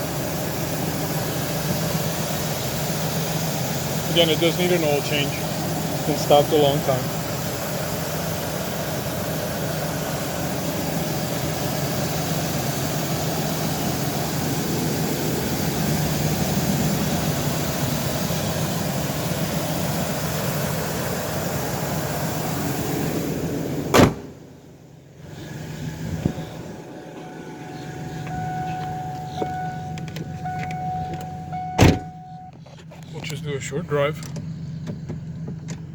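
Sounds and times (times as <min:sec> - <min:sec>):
van engine idling: 0:00.0 - 0:35.9
loud thump: 0:23.9 - 0:24.4, 0:31.7 - 0:32.2.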